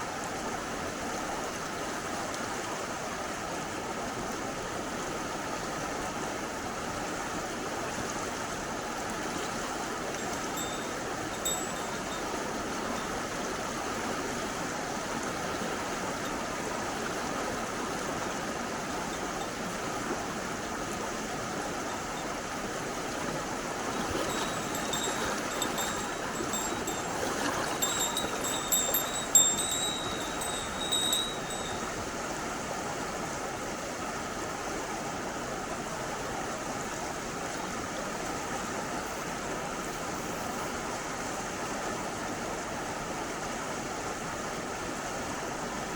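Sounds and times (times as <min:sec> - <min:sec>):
mountain stream running: 0:00.0 - 0:45.9
thin high ringing jingles: 0:10.1 - 0:13.3, 0:23.9 - 0:32.1.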